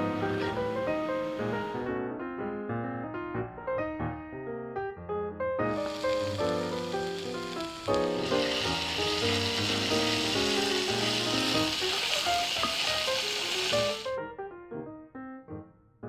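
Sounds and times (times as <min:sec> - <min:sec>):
food sizzling in hot oil: 0:00.0 - 0:01.8, 0:05.7 - 0:14.2.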